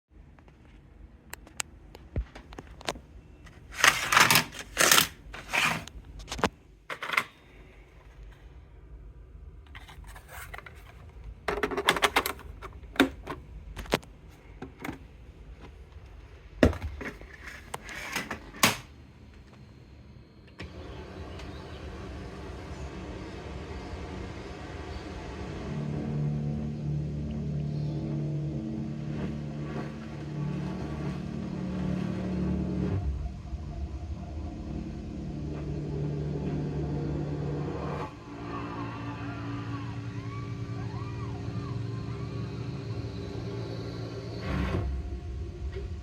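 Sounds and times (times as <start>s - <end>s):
clicks knocks and scrapes: 9.7s - 15.1s, 16.6s - 18.8s
steady low rumbling: 19.0s - 46.0s.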